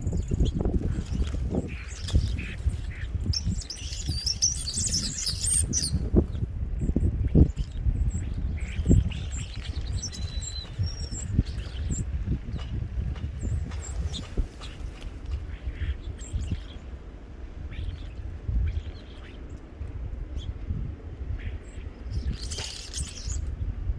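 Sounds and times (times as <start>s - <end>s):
low steady rumble: 0.0s - 23.9s
songbirds twittering: 0.0s - 23.9s
whistled bird notes: 3.3s - 6.0s, 7.3s - 12.7s, 21.4s - 23.5s.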